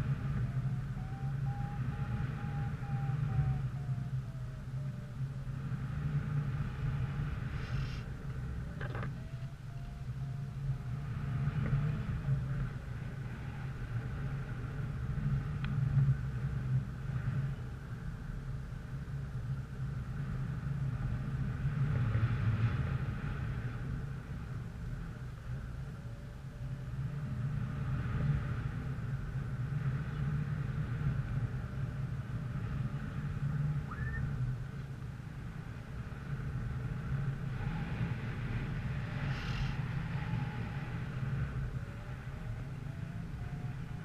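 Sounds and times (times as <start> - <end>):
faint whine: 0.0 - 44.0
vehicle engine and road rumble: 0.0 - 44.0.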